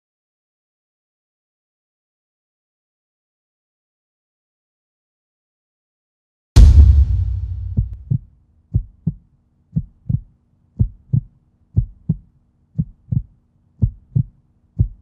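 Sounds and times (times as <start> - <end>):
loud booming hit: 6.6 - 8.1
heartbeat thumps: 6.6 - 9.2, 9.8 - 15.0.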